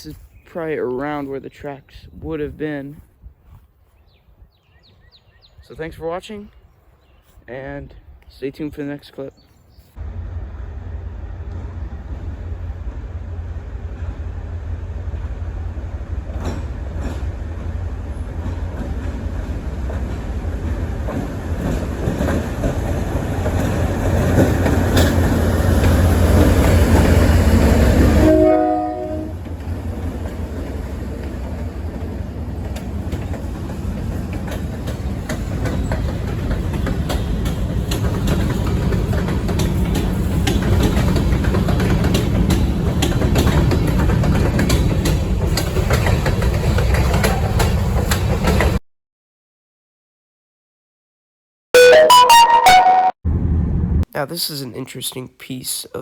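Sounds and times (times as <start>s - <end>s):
diesel locomotive rumble: 10.0s - 48.7s
wheels clicking over rail joints: 18.3s - 27.8s, 29.4s - 48.8s
train horn: 28.2s - 29.4s.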